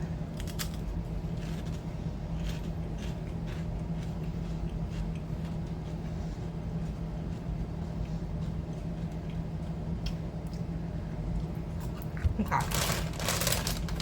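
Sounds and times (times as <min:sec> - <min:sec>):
steady low hum: 0:00.0 - 0:14.0
snack crunching: 0:00.4 - 0:10.7.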